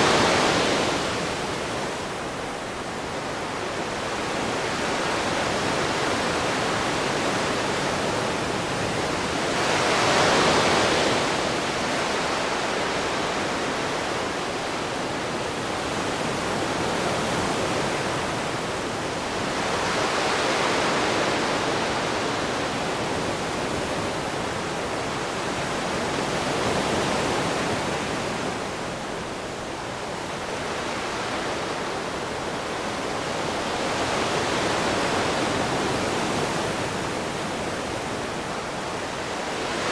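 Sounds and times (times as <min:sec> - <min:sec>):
ocean waves on a shore: 0:00.0 - 0:39.9.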